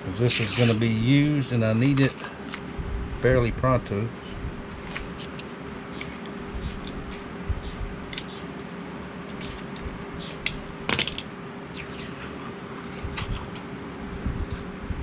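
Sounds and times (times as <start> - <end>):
steady low hum: 0.0 - 15.0
masking tape peeling off: 0.2 - 1.0.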